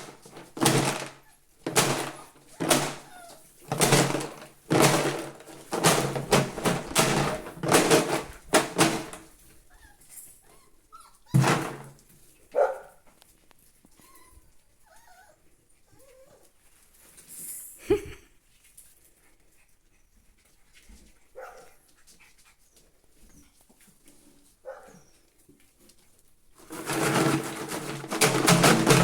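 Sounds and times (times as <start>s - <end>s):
puppies whimpering and squeaking: 2.4s - 3.5s, 9.6s - 11.4s, 13.8s - 16.6s, 24.8s - 25.4s.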